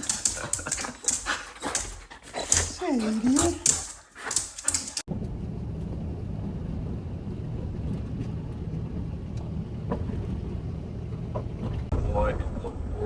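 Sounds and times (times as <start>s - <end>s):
road noise: 5.1s - 13.0s
vehicle engine rumble: 5.1s - 13.0s.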